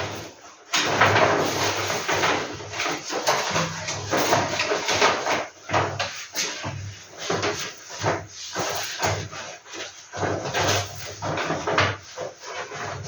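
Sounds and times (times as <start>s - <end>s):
soft knocks: 3.5s - 4.5s.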